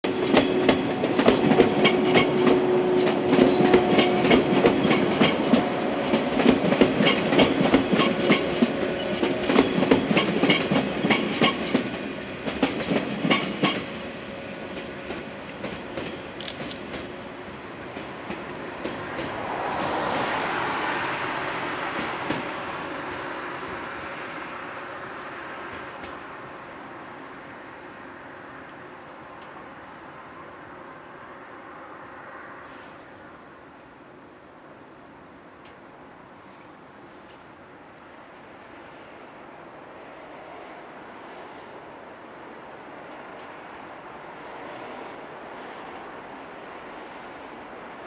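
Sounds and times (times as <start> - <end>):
train hum: 0.0 - 48.0
train wheels clicking over rail joints: 0.1 - 14.0, 14.7 - 17.2.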